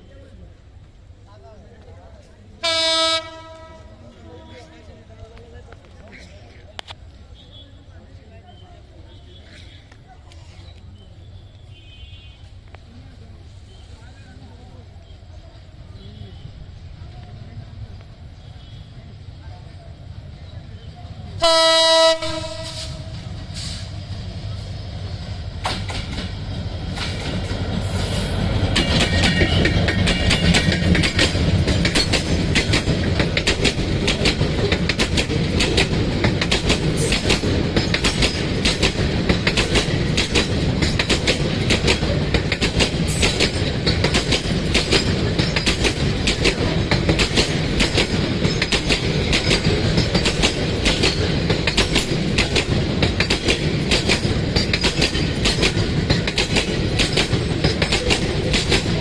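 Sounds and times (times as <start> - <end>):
train rumble: 12.4 - 59.0
train wheels clattering over rail joints: 25.3 - 59.0.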